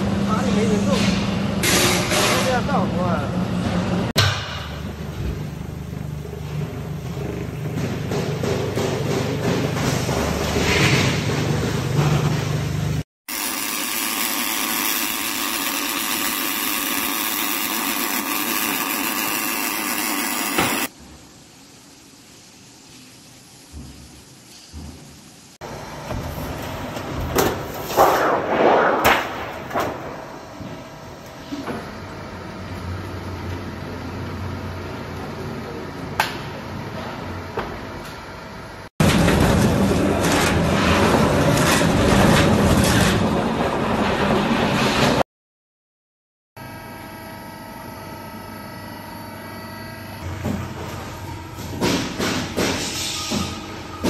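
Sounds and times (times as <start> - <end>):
machinery hum: 0.0 - 24.1, 25.1 - 42.7, 46.6 - 54.0
sharp metal knocks: 4.2 - 4.8
machine knocking: 51.6 - 54.0.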